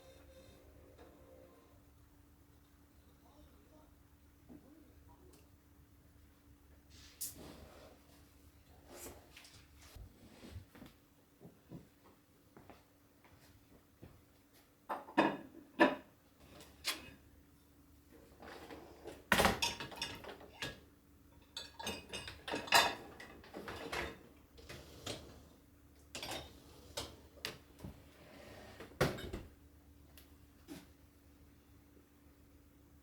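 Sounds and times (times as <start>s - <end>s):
faint steady hum: 0.0s - 14.8s.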